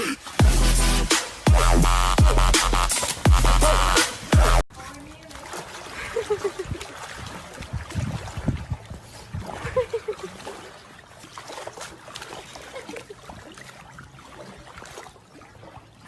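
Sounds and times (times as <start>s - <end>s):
water splashing and trickling: 0.0s - 16.0s
heavy low splashing thumps: 0.2s - 4.6s.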